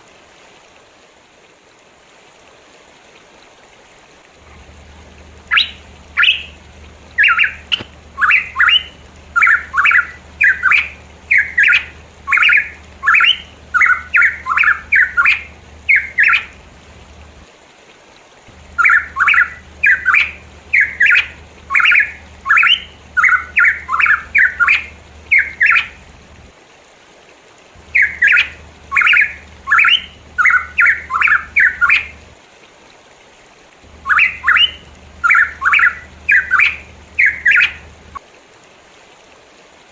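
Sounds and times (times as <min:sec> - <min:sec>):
bird calling harsh notes: 0:04.5 - 0:17.4, 0:18.5 - 0:26.4, 0:27.8 - 0:32.3, 0:33.9 - 0:38.2.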